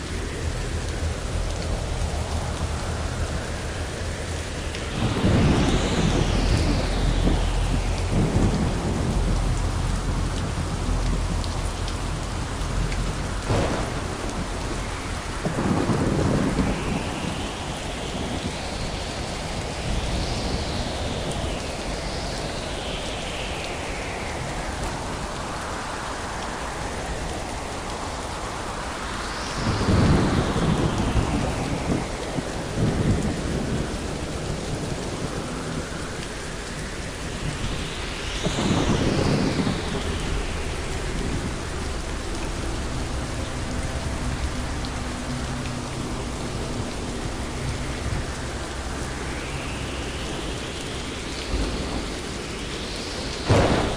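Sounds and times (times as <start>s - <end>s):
heavy rain: 0.0s - 53.9s
rolling thunder: 0.0s - 53.9s
sharp thunder crack: 13.4s - 21.4s, 53.4s - 53.9s.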